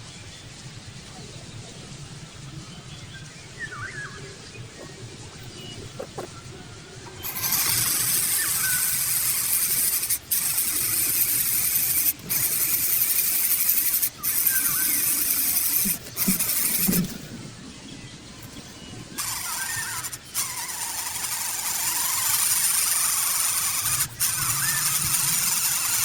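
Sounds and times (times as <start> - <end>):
bird hissing: 7.2 - 17.2.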